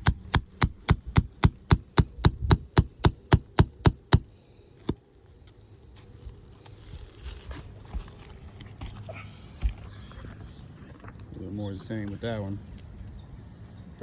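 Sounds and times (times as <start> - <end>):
hammer striking shingle roof: 0.0 - 4.3.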